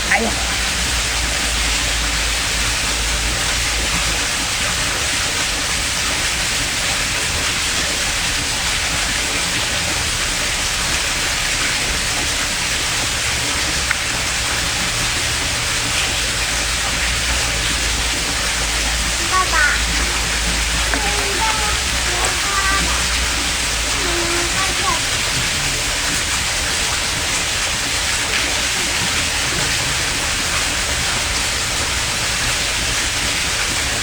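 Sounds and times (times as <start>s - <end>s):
loud hissing noise: 14.9s - 26.7s.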